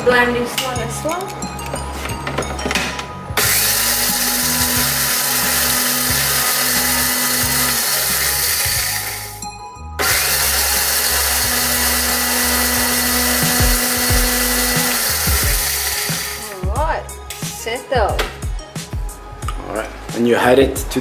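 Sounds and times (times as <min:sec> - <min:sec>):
electric blender grinding seeds: 0:03.4 - 0:09.4, 0:10.0 - 0:16.7.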